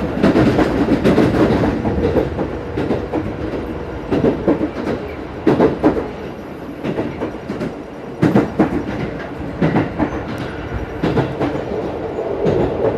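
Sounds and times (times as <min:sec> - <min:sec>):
train running rumble: 0:00.0 - 0:12.9
train wheels clacking: 0:00.0 - 0:12.9.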